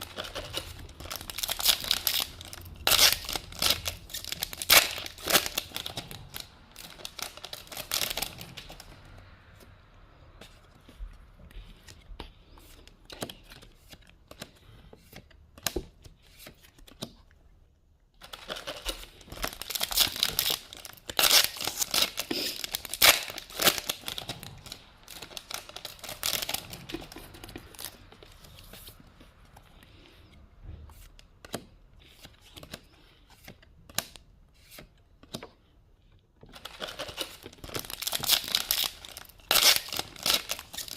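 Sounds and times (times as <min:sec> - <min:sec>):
foil wrapper tearing and crinkling: 0:00.0 - 0:08.7, 0:18.2 - 0:27.1, 0:36.5 - 0:40.9.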